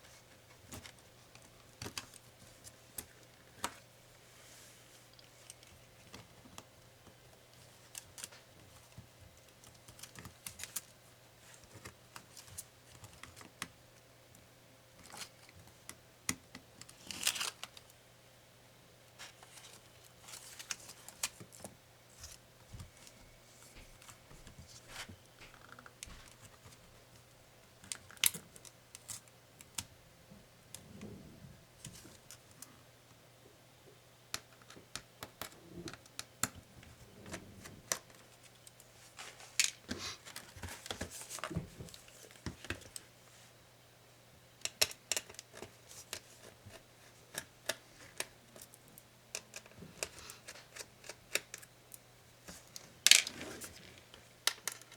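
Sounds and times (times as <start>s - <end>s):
faint steady hum: 0.0s - 54.9s
tools and laptop parts clicking: 44.7s - 46.3s.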